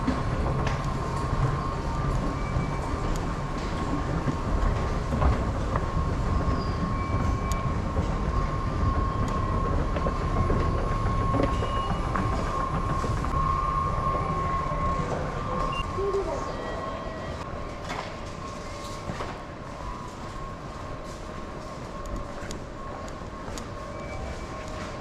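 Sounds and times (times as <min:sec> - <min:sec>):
electric train running: 0:00.0 - 0:25.0.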